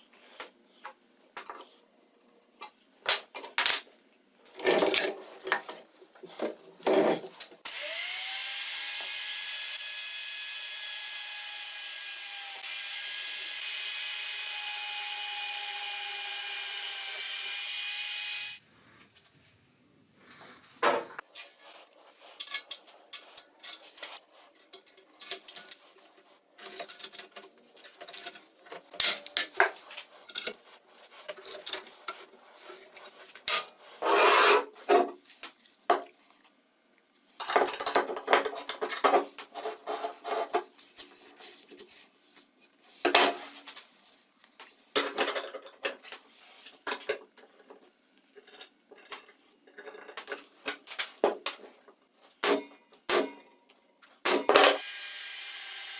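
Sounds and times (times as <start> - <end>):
metal parts clicking and clattering: 4.5 - 5.8, 26.6 - 29.7
power tool whining: 7.7 - 18.6, 54.8 - 55.9.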